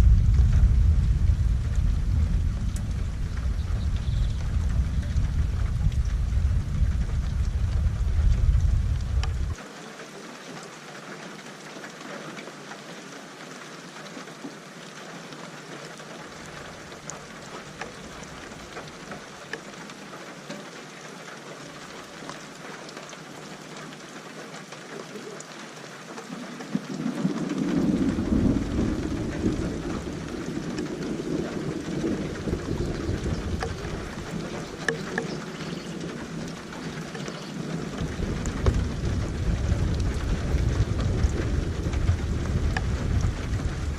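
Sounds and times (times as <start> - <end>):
rolling thunder: 0.0 - 9.6, 26.7 - 43.9
steady rain falling: 0.0 - 43.9.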